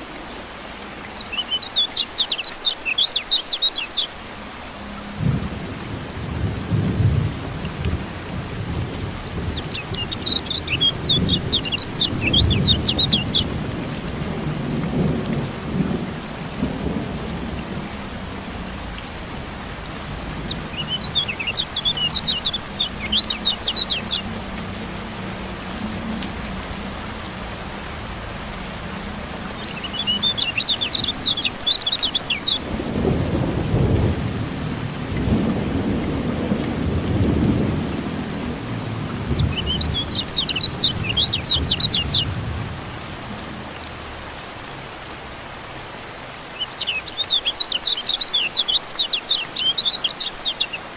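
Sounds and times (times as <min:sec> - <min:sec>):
steady rain: 0:00.0 - 0:50.9
bird chattering song: 0:00.8 - 0:04.1, 0:09.3 - 0:13.5, 0:20.1 - 0:24.3, 0:29.6 - 0:32.6, 0:39.0 - 0:42.3, 0:46.6 - 0:50.8
low rolling thunder: 0:05.1 - 0:31.4, 0:32.4 - 0:43.0.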